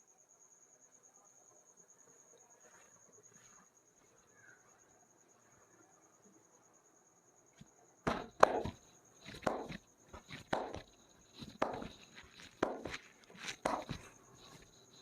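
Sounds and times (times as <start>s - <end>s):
hands slapping body: 8.1s - 14.1s.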